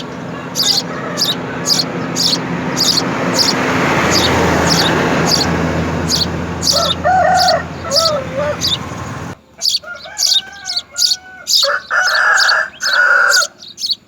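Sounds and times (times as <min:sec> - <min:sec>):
passing vehicle hiss: 0:00.0 - 0:09.4
rooster crowing: 0:00.0 - 0:13.6
small bird chirping: 0:00.0 - 0:14.0.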